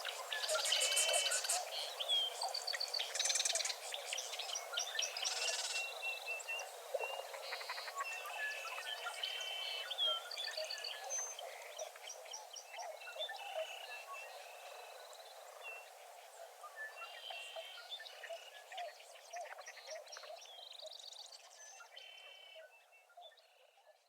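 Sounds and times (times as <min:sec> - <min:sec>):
frogs croaking: 0:07.1 - 0:08.0.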